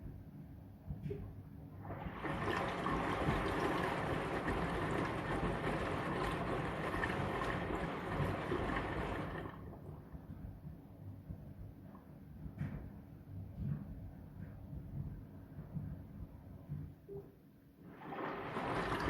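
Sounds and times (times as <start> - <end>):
washing machine drum sloshing: 1.0 - 10.1, 17.8 - 19.0.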